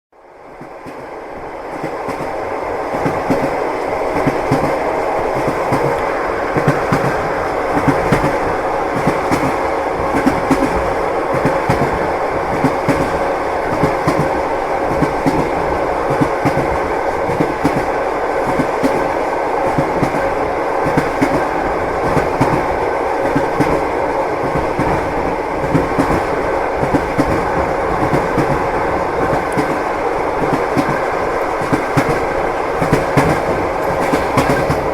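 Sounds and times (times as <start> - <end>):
rumble of moving train: 0.2 - 34.9
train wheels knocking over joints: 24.4 - 34.9.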